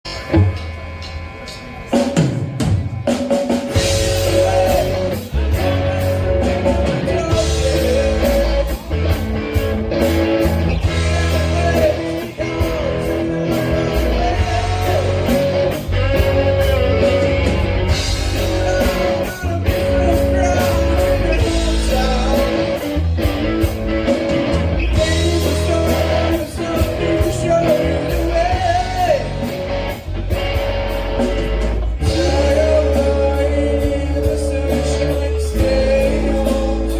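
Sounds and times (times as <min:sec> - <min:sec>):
rock band playing: 0:00.0 - 0:36.9
person singing: 0:03.8 - 0:09.0, 0:10.8 - 0:23.0, 0:24.9 - 0:29.5, 0:32.0 - 0:36.9.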